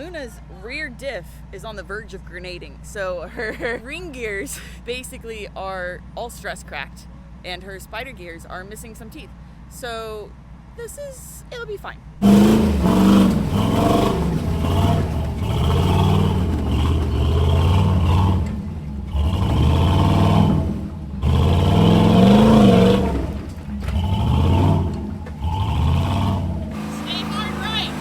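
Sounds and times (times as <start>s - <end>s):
off-road vehicle engine revving: 11.4s - 28.0s.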